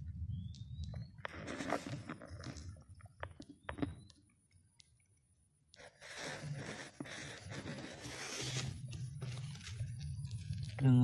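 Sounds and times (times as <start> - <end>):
rustling close to microphone: 1.1 - 3.9, 5.8 - 11.0.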